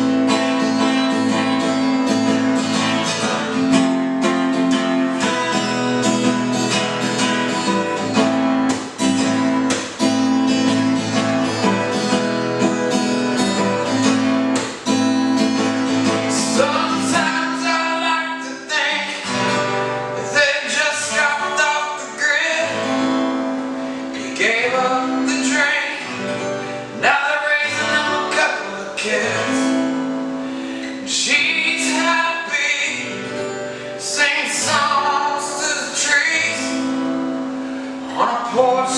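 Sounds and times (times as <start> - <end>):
acoustic guitar strumming: 0.0 - 38.9
man singing: 15.8 - 38.9.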